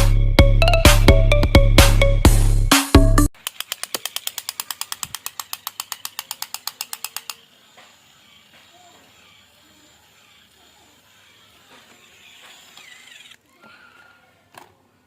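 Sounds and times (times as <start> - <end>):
rapid sharp clicks: 3.4 - 8.0.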